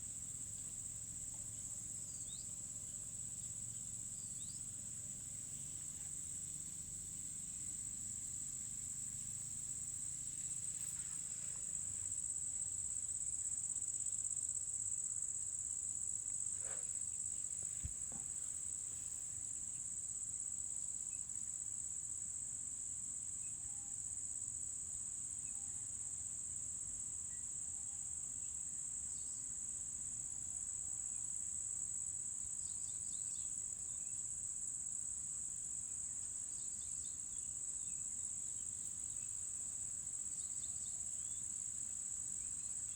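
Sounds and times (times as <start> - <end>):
crickets trilling: 0.0 - 20.3, 30.6 - 42.9.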